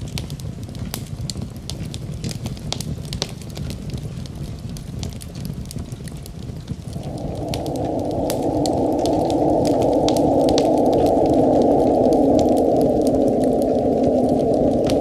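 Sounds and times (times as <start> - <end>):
wood fire crackling: 0.0 - 15.0
low steady rumble: 6.7 - 15.0
rushing noise: 6.8 - 15.0.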